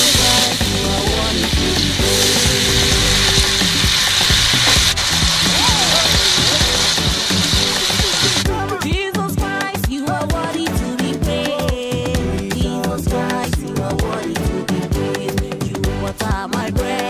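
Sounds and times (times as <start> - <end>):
food frying in hot oil: 0.0 - 8.4
background music: 0.0 - 17.0.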